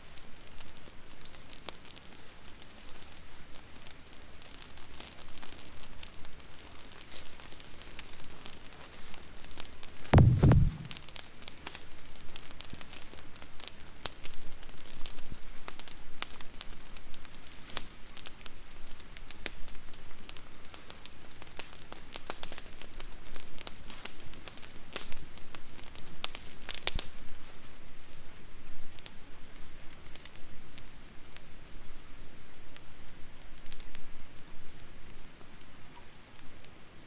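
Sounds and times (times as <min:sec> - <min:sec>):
campfire crackling and popping: 0:10.2 - 0:11.0.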